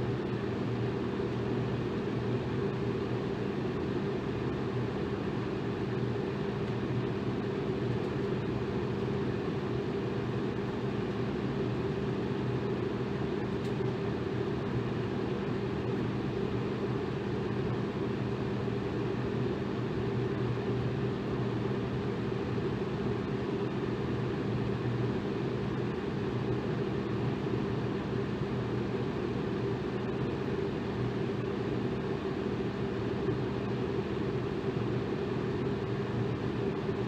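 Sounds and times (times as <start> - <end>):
electric fan running: 0.0 - 37.0.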